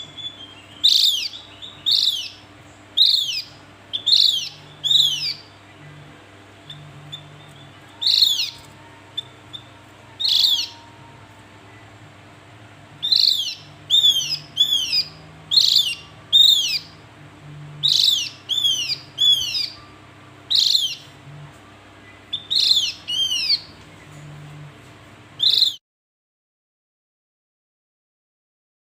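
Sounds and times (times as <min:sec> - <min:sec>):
bird calling sharp high notes: 0:06.6 - 0:11.1, 0:13.0 - 0:17.0, 0:17.8 - 0:21.2, 0:22.0 - 0:23.8.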